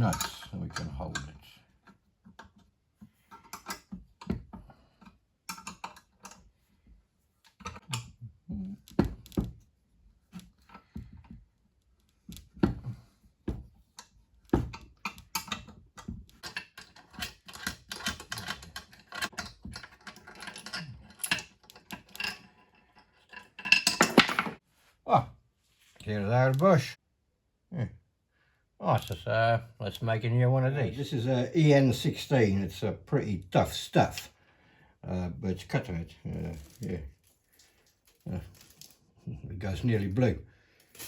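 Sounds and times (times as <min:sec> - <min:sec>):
metallic clicks of nuts and tools: 0:00.0 - 0:06.5, 0:13.9 - 0:24.6.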